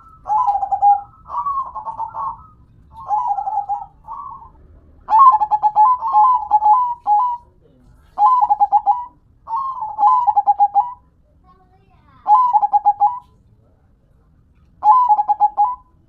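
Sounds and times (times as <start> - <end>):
dove cooing in staccato phrases: 0.0 - 7.5, 8.2 - 11.1, 12.2 - 13.4, 14.8 - 16.0.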